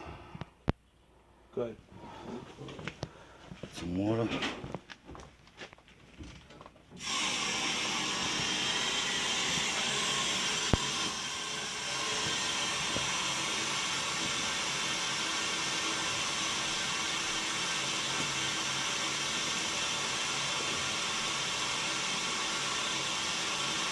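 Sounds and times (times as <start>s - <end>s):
water rushing into boiler: 6.9s - 23.9s.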